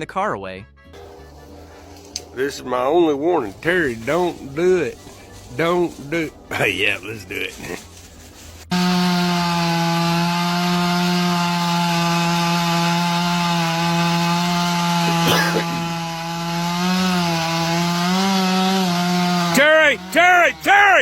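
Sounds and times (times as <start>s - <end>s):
chainsaw cutting tree: 1.0s - 6.6s, 8.7s - 21.0s.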